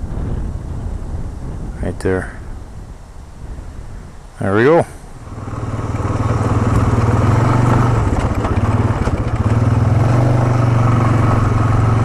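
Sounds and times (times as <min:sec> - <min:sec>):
atv engine running: 0:05.2 - 0:12.0.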